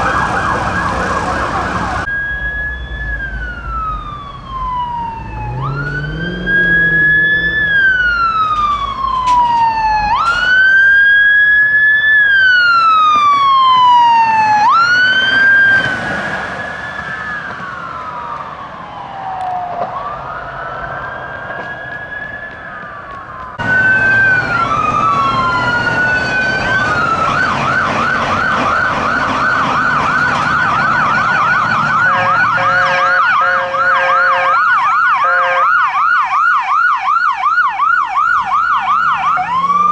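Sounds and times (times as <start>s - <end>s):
ambulance siren wail and yelp: 0.0s - 39.9s
police siren wailing: 0.0s - 39.9s
blaring horn tone: 23.6s - 35.8s.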